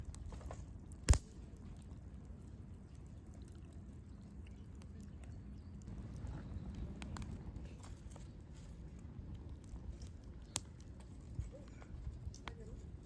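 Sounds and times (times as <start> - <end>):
campfire burning: 0.0 - 13.0
loud sharp fire snap: 1.0 - 1.6.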